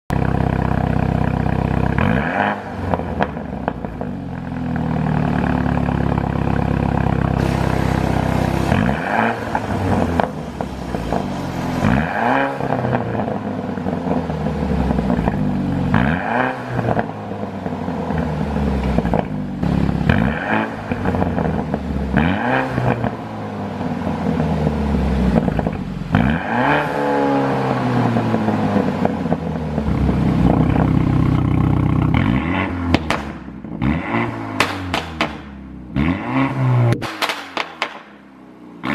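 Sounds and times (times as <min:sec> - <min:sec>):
car engine revving: 0:01.8 - 0:38.9
exhaust pops and crackles: 0:29.8 - 0:33.5, 0:34.6 - 0:35.6, 0:36.9 - 0:38.2.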